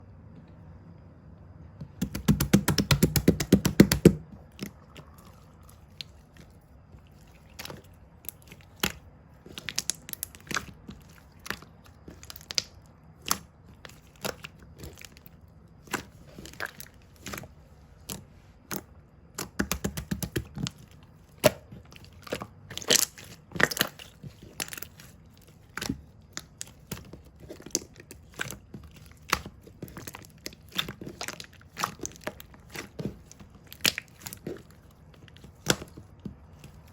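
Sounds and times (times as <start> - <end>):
squishy toys tapped: 1.8 - 4.7, 19.4 - 20.7
crinkly crunching of toys: 20.5 - 36.9.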